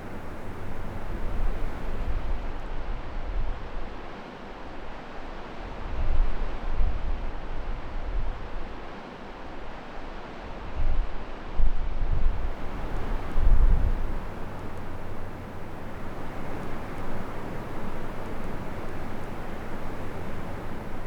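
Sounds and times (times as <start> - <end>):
wind buffeting microphone: 0.0 - 2.4, 12.3 - 21.0.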